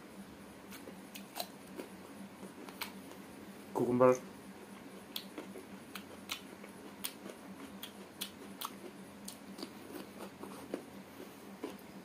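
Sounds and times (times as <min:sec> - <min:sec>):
faint steady hum: 0:00.0 - 0:12.0
cucumber crunching: 0:00.7 - 0:01.9, 0:05.1 - 0:11.9.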